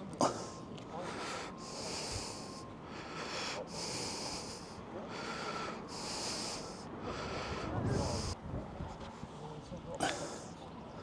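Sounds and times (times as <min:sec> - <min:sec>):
person breathing: 0:00.2 - 0:08.4
low wind rumble: 0:04.0 - 0:09.1.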